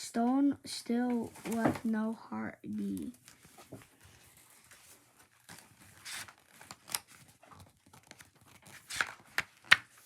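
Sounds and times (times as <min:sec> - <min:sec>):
book pages rustling: 0:01.2 - 0:01.9, 0:02.8 - 0:10.0
sharp paper snap: 0:06.0 - 0:07.2, 0:07.9 - 0:10.0.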